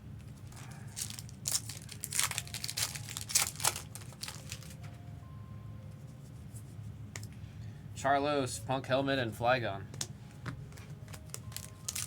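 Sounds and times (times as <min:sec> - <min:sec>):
foil wrapper crinkling and tearing: 0:00.3 - 0:04.8, 0:11.1 - 0:12.0.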